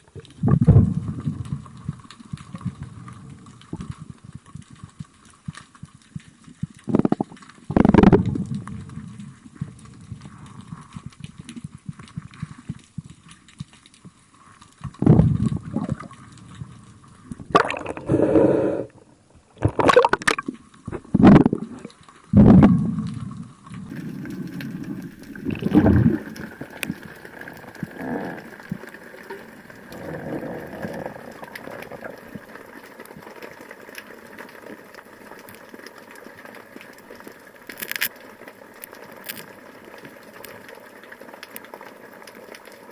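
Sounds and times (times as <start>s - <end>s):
water gurgling and sloshing: 0.0s - 42.9s
water rushing bursts: 23.9s - 32.5s.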